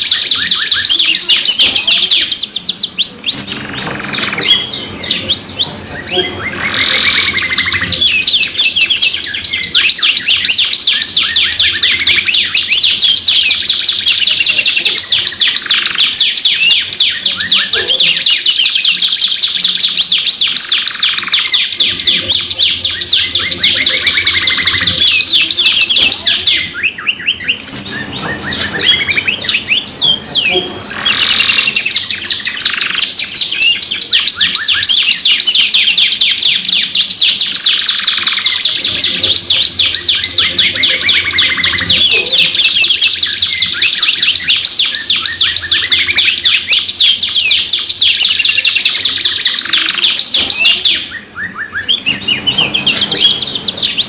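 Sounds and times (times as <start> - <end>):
canaries singing trills: 0.0 - 54.0.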